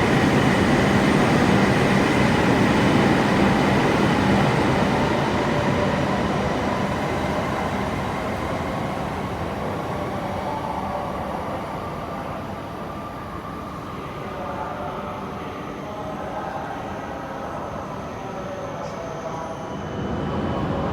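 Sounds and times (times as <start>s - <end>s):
train rumble and hiss: 0.0s - 20.9s.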